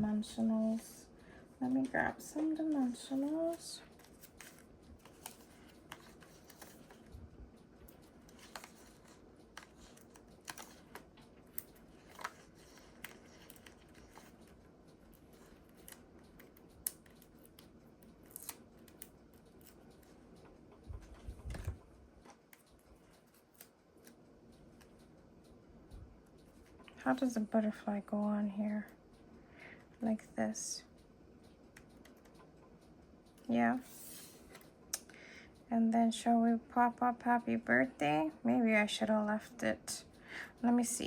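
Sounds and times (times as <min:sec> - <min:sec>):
small clicks: 0:02.4 - 0:27.0.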